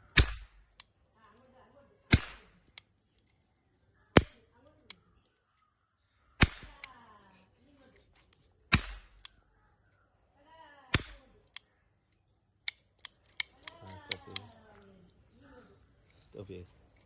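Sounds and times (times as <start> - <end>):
toy cap gun cracks: 0.2 - 0.9, 2.1 - 3.3, 6.4 - 7.0, 8.7 - 9.4, 10.9 - 11.7, 12.6 - 14.6.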